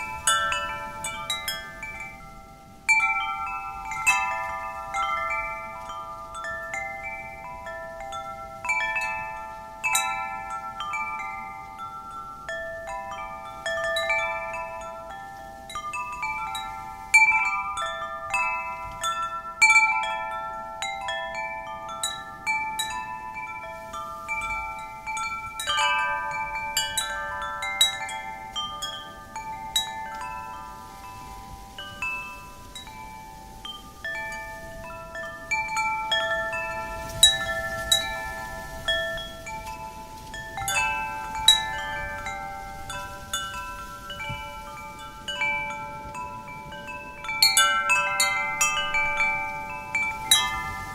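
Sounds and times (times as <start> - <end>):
wind chimes ringing: 0.0 - 50.9.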